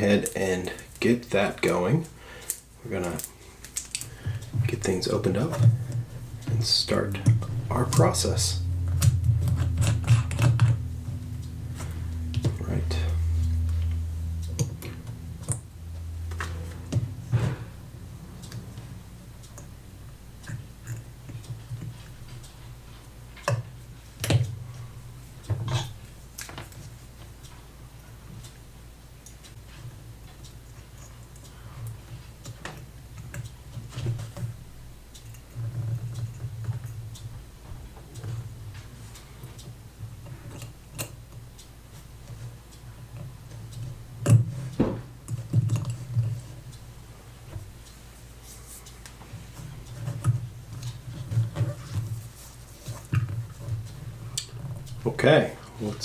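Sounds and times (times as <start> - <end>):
low steady hum: 0.0 - 56.0
faint low hum: 4.0 - 28.6.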